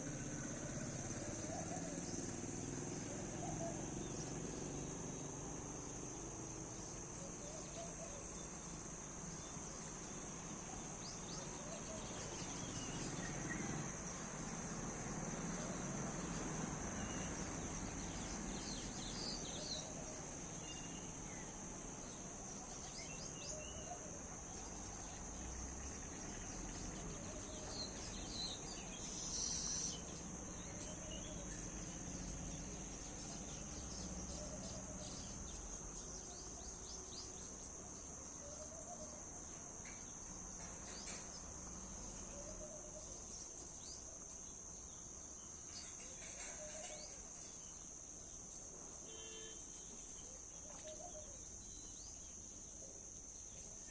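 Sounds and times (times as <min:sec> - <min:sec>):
crickets and insects droning: 0:00.0 - 0:53.9
bird chirps: 0:26.4 - 0:37.6.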